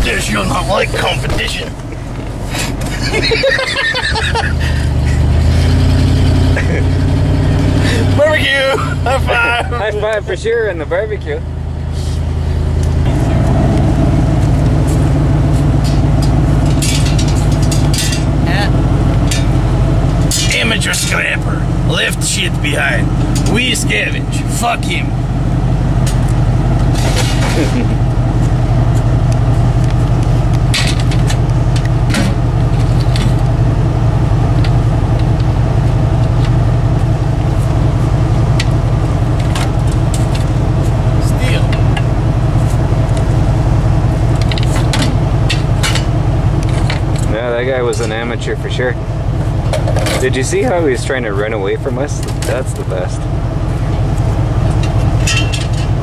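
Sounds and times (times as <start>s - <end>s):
vehicle engine and road noise: 0.0s - 56.0s
sharp rattles: 15.7s - 18.4s.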